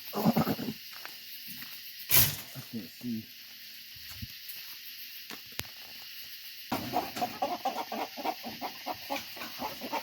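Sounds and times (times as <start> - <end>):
faint hiss: 0.0 - 6.7
chickens clucking: 6.7 - 10.0.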